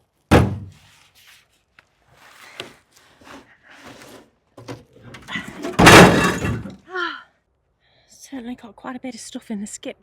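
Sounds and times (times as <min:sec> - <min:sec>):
rubbish rustling and knocking: 0:02.1 - 0:06.8.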